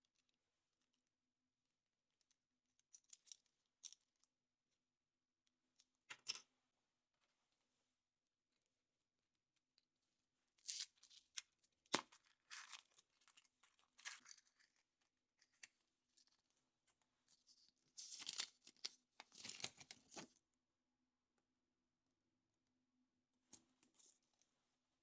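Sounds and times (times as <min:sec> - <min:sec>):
packaging being torn and crinkled: 0:18.0 - 0:20.2.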